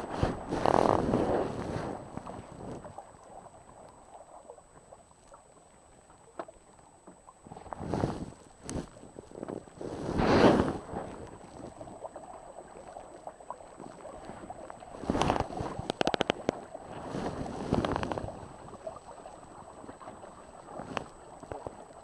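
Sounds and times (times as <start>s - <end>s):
wind and water rushing: 0.0s - 3.4s, 7.5s - 13.2s, 13.8s - 22.0s
sharp clicks: 15.9s - 16.6s.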